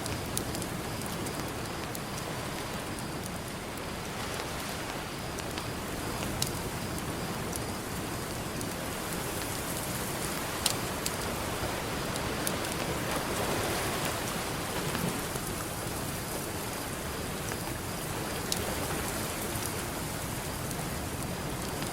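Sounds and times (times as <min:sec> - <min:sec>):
campfire crackling and popping: 0:00.0 - 0:21.9
ocean surf: 0:08.9 - 0:21.8.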